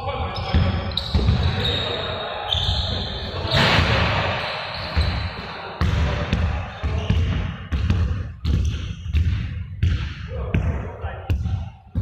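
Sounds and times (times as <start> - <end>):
balls bouncing on hard floor: 5.8 - 12.0.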